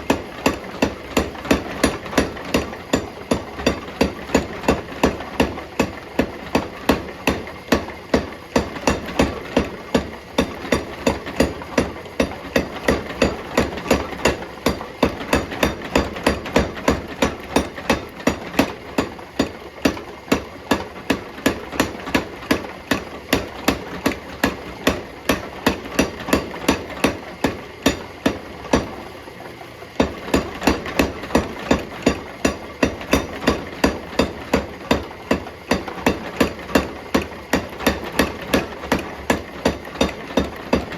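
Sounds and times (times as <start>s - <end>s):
hammer striking steel on anvil: 23.3s - 28.9s, 30.0s - 35.0s.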